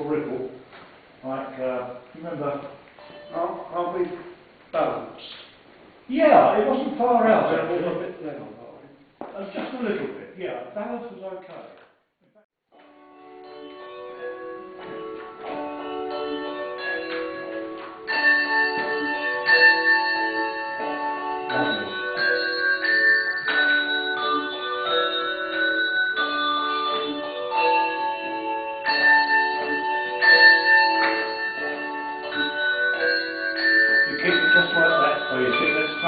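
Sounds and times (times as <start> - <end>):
handbell choir ringing: 13.4 - 36.0.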